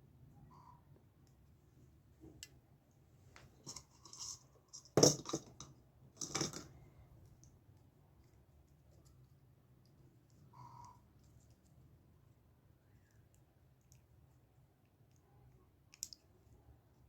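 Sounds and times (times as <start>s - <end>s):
light clicks and scrapes: 3.2s - 11.9s.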